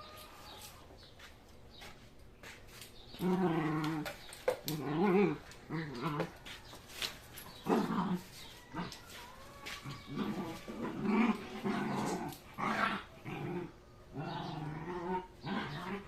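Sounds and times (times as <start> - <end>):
dogs growling and whining: 3.1 - 6.4, 7.3 - 9.2, 9.8 - 16.0.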